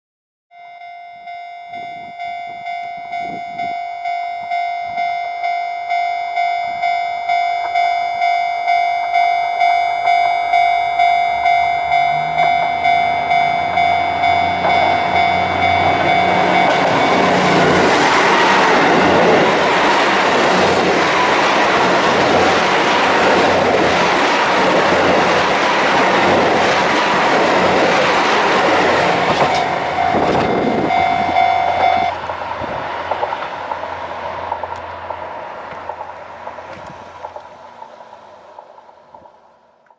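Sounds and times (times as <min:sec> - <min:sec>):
level crossing alarm bell: 0:00.5 - 0:32.3
train wheels clattering: 0:12.2 - 0:39.4.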